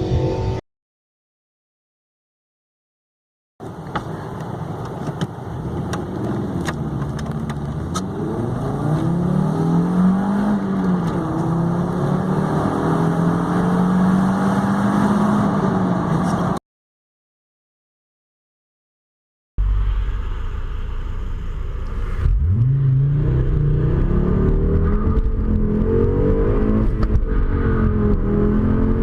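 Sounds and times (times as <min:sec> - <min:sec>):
car engine accelerating: 0:05.6 - 0:16.6, 0:19.6 - 0:29.0.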